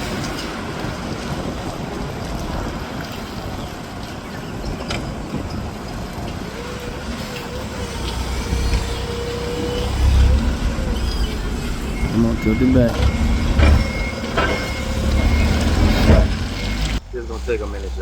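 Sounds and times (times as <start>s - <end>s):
wind buffeting microphone: 0.0s - 18.0s
forklift engine running: 4.8s - 18.0s.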